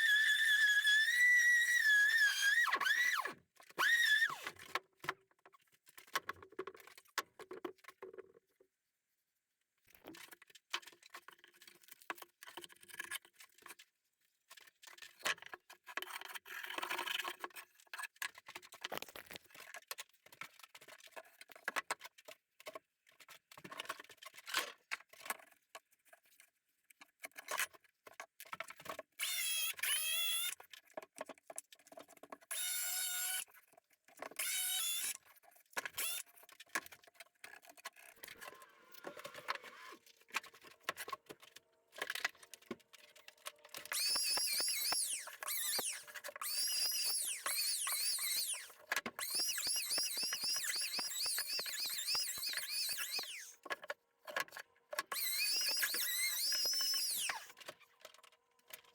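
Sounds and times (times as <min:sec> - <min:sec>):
high-pitched squeaking: 0:43.8 - 0:53.6, 0:55.1 - 0:57.5.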